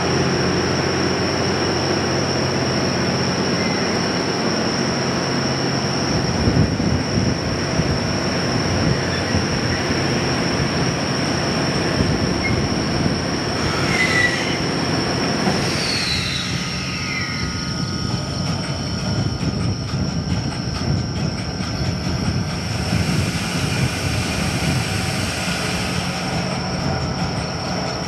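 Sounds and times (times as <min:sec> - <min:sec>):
train wheels rumbling on rails: 0:00.0 - 0:28.0
high squeal: 0:03.2 - 0:04.2, 0:11.8 - 0:18.9
wheels clickety-clack: 0:18.2 - 0:23.2.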